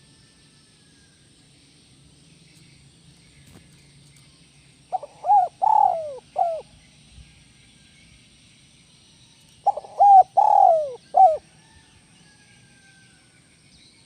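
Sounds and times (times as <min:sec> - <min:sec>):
faint background noise: 0:00.0 - 0:14.0
dove cooing: 0:04.9 - 0:06.7, 0:09.6 - 0:11.4.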